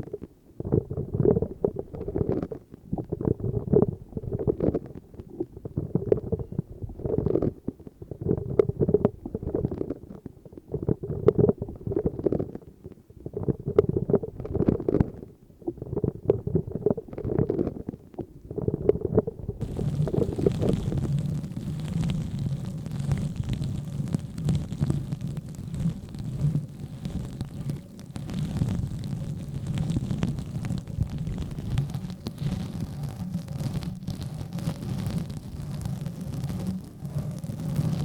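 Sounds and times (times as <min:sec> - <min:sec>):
hissy rubbing: 0:19.6 - 0:38.0.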